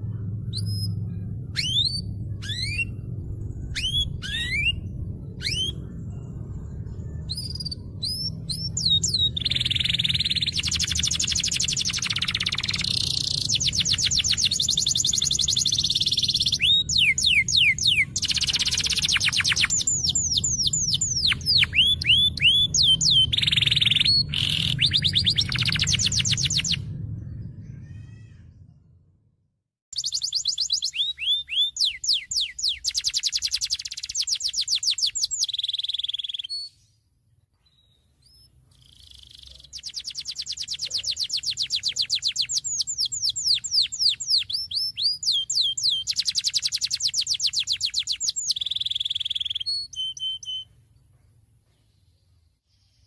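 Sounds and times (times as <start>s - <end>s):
canary singing: 0.0s - 28.1s, 29.9s - 36.9s, 37.7s - 50.8s
low hum: 0.0s - 35.5s.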